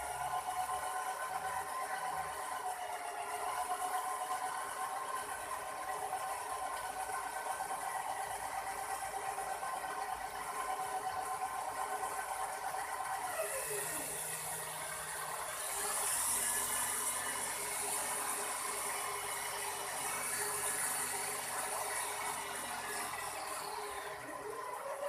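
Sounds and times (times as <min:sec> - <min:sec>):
toy helicopter motor whirring: 0:08.6 - 0:25.0.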